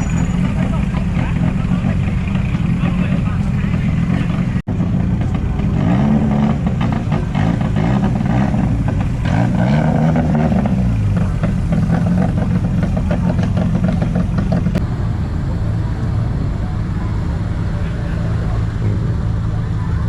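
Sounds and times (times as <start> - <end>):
vehicle engines revving: 0.0 - 20.0.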